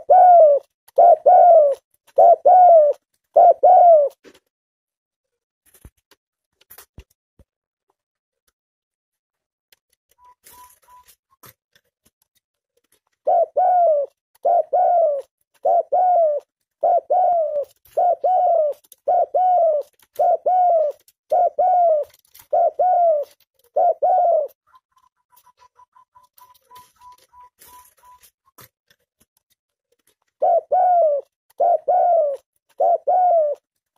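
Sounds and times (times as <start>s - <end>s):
dove cooing: 0.0s - 4.2s, 13.2s - 28.3s, 30.4s - 33.7s.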